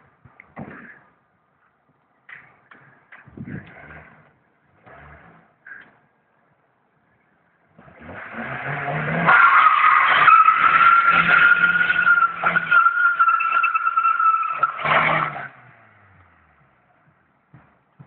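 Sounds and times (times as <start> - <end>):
tyres squealing in a skid: 8.1 - 15.6.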